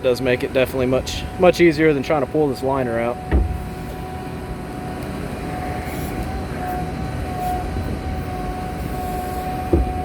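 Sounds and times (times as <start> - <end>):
diesel engine running: 0.0 - 10.0
hydraulic whine: 0.0 - 10.0
short thump: 3.3 - 3.6.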